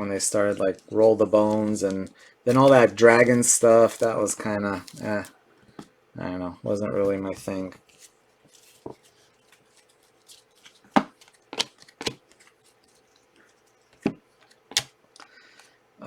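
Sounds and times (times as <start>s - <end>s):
faint card rustling: 0.4s - 5.9s, 6.9s - 15.8s
trading cards clicking and snapping: 10.6s - 12.5s, 14.0s - 15.3s.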